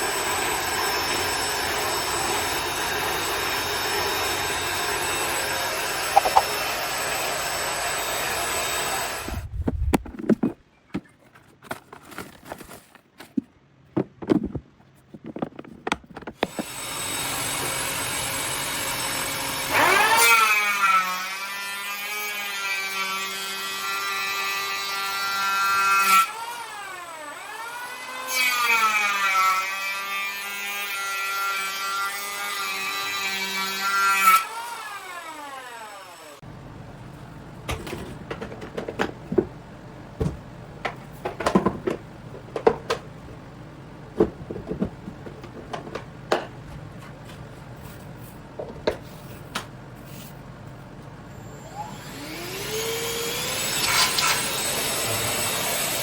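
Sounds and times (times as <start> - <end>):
vacuum cleaner motor whine: 0.0 - 9.4, 16.4 - 20.7, 51.3 - 56.0
knocks and clicks of handling: 9.6 - 16.7, 37.7 - 39.6, 40.2 - 43.4, 44.1 - 47.5, 48.6 - 49.8.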